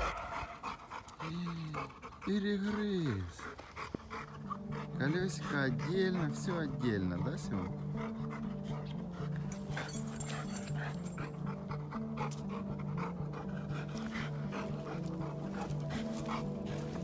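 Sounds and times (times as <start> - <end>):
dog panting: 0.0 - 17.0.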